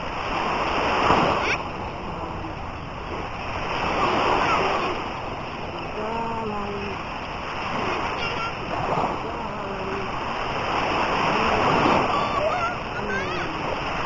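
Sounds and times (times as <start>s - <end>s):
sea surf splashing: 0.0s - 14.0s
person calling out: 5.9s - 7.0s, 11.3s - 13.7s.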